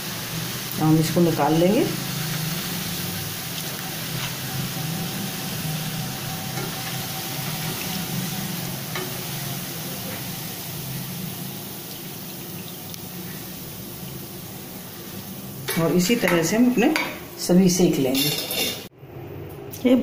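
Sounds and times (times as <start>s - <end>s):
deep-frying sizzle in oil: 0.0s - 18.9s.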